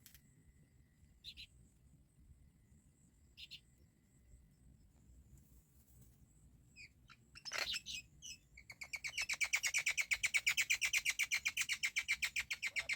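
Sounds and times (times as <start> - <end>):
baby birds calling: 7.1 - 12.9.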